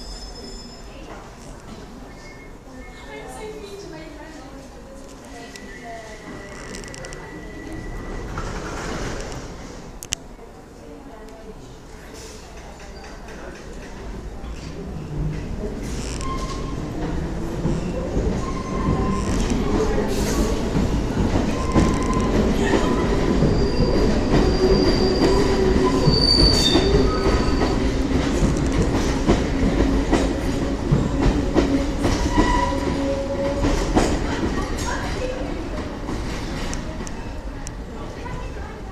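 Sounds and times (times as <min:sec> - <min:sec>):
train rumbling on rails: 0:05.6 - 0:10.1, 0:11.8 - 0:38.9
high wheel squeal: 0:21.5 - 0:27.8.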